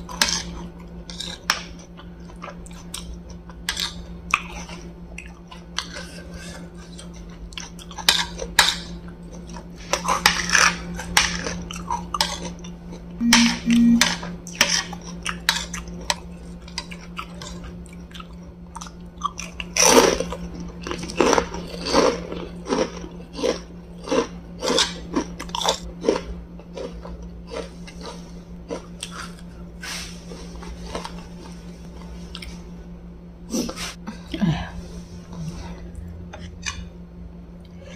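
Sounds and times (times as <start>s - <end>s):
chewing and crunching crisp food: 0.0s - 37.9s
low hum: 13.2s - 14.3s.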